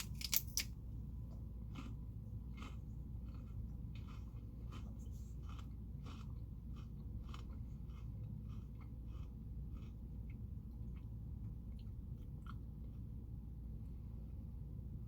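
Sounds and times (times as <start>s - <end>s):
low steady hum: 0.0s - 15.0s
crisp chewing crunches: 1.4s - 10.4s.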